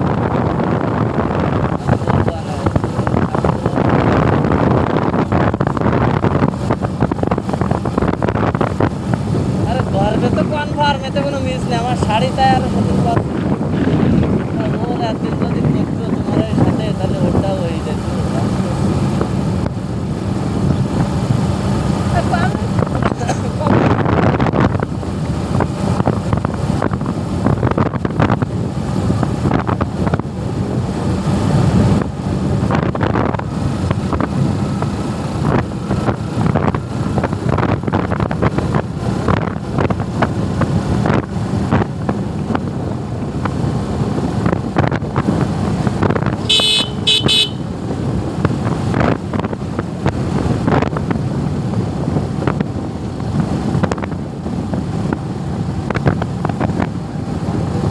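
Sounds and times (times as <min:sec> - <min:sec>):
motorcycle engine: 0:00.0 - 0:57.9
wind noise on microphone: 0:00.0 - 0:57.9
horn tooting: 0:46.4 - 0:47.7.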